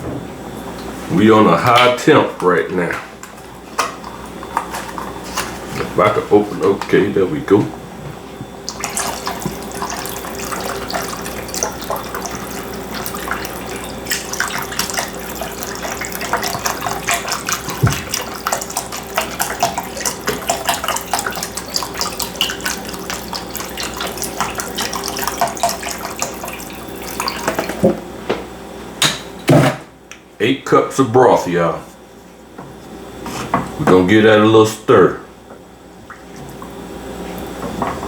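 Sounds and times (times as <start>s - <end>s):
liquid pouring into pot: 8.6s - 27.9s.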